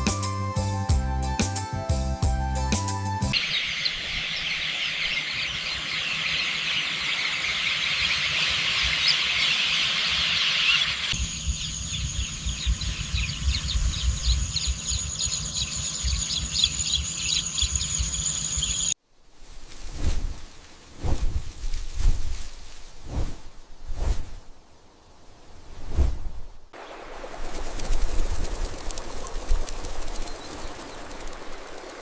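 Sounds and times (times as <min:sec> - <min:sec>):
birds chirping: 0:03.3 - 0:19.0, 0:26.8 - 0:32.0
insects chirping: 0:03.4 - 0:19.0, 0:26.7 - 0:32.0
high insect drone: 0:09.9 - 0:19.0, 0:26.8 - 0:32.0.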